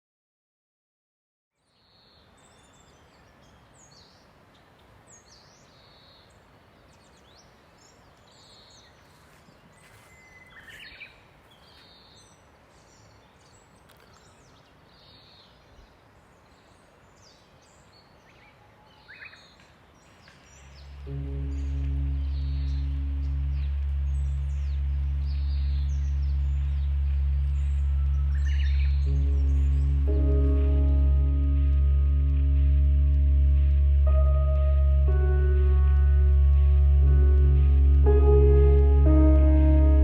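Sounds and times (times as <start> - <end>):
faint outdoor background: 1.5 - 40.0
birds chirping and calling: 18.3 - 30.9.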